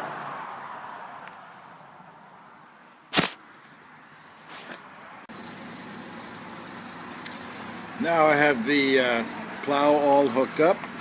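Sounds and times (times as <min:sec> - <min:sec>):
sharp click: 0:03.1 - 0:03.4.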